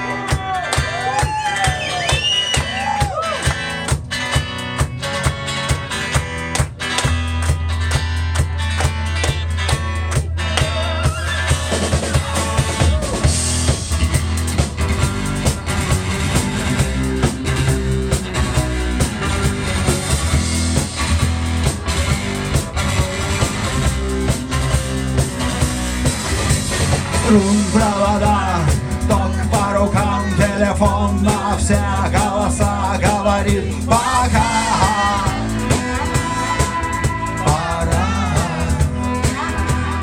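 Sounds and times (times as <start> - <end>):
bass and guitar: 0.0 - 40.0
drum kit beat: 0.0 - 40.0
person singing: 27.2 - 40.0.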